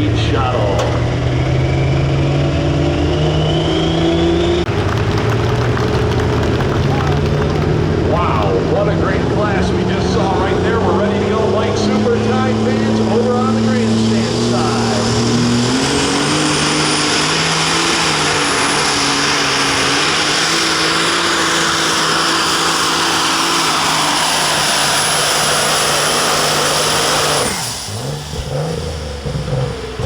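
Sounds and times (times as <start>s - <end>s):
diesel tractor engine under load: 0.0s - 30.0s
high turbo whistle: 1.4s - 4.7s.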